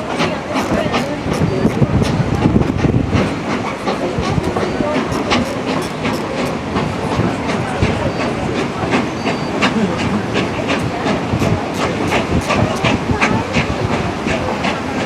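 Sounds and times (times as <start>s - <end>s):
steam locomotive exhaust chuffing: 0.0s - 15.0s
train rumble: 0.0s - 15.0s
steam hiss: 4.2s - 7.0s, 9.2s - 13.3s.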